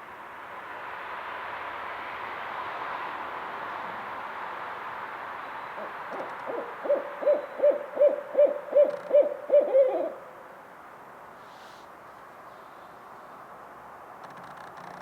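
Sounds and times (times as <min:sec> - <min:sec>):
background hiss: 0:00.0 - 0:15.0
owl hooting: 0:05.8 - 0:10.3.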